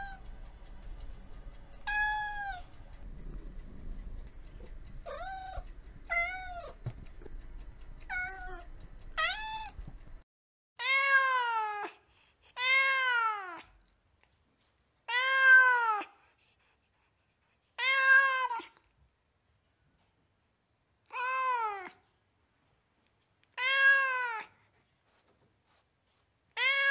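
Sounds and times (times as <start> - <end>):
cat meowing: 1.8 - 2.7, 5.1 - 6.8, 8.1 - 9.8, 10.8 - 11.9, 12.6 - 13.7, 15.1 - 16.1, 17.8 - 18.8, 21.1 - 22.0, 23.5 - 24.5, 26.6 - 26.9.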